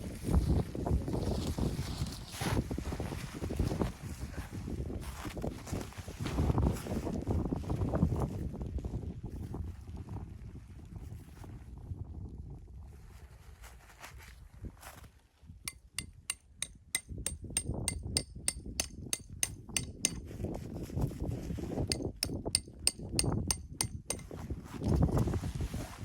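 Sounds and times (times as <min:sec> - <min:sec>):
metallic hammer blows: 0:15.7 - 0:20.2, 0:21.9 - 0:24.3.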